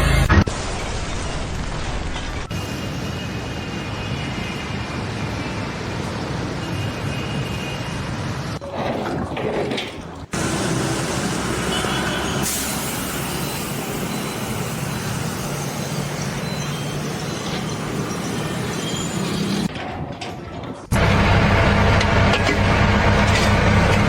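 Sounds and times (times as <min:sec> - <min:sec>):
rumbling engine noise: 0:10.1 - 0:19.7, 0:20.8 - 0:24.0.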